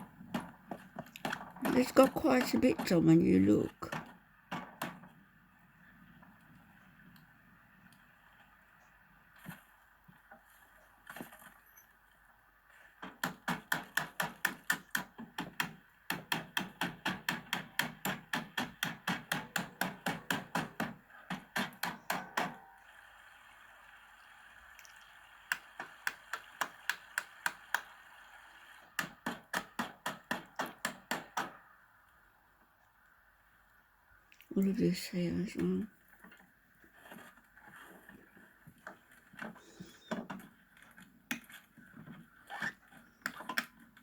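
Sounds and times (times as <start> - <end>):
hammering on wood: 13.0 - 22.6, 29.0 - 31.6.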